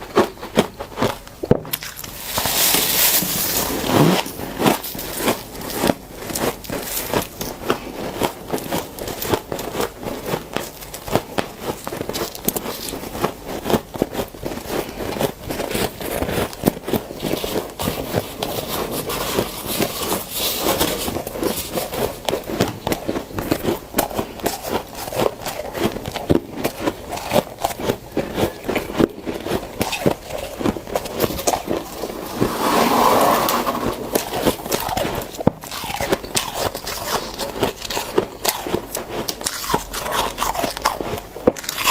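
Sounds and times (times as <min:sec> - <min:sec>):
frost scraped and crunched by hand: 0:01.8 - 0:07.4.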